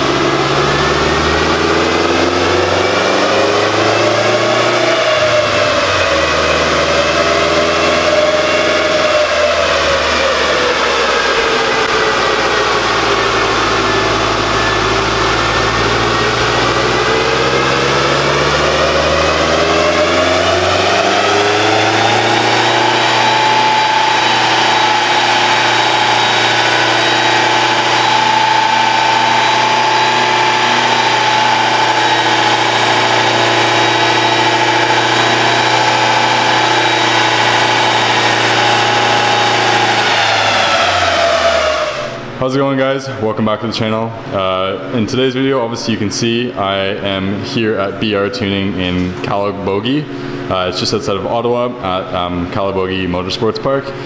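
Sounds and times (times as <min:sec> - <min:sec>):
car engine running: 0:00.0 - 0:42.4.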